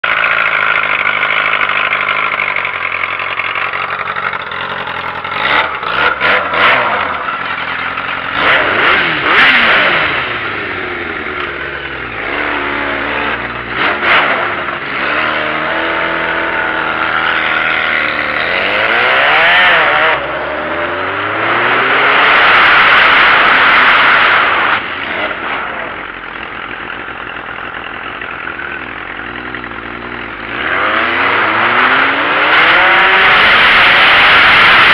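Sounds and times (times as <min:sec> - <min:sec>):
sport bike engine revving: 0:00.0 - 0:34.9.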